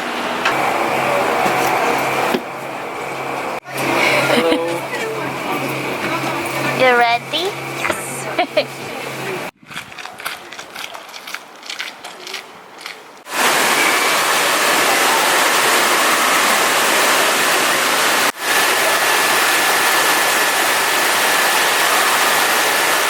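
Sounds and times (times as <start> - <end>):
loud steady rushing noise: 13.3 - 23.0.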